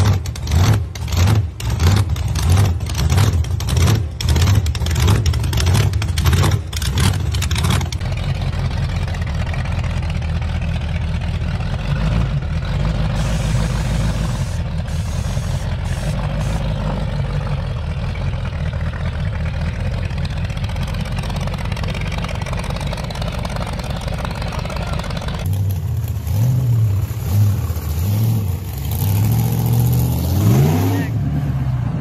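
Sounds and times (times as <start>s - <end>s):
car engine running at low revs: 0.0s - 32.0s
car engine revving: 20.6s - 32.0s.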